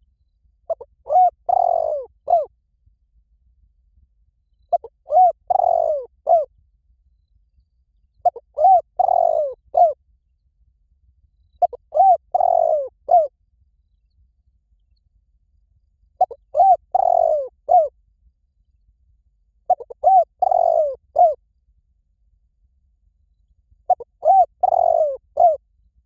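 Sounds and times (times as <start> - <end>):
dove cooing: 0.7 - 2.5, 4.7 - 6.5, 8.2 - 10.0, 11.6 - 13.3, 16.2 - 17.9, 19.7 - 21.4, 23.9 - 25.6.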